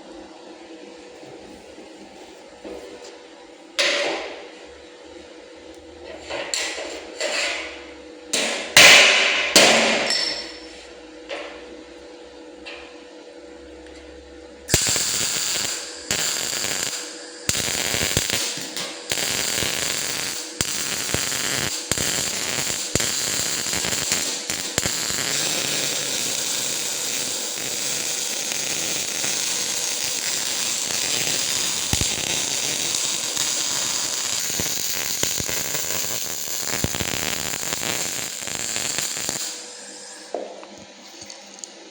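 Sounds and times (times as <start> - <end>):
welder arc crackling: 14.7 - 40.3.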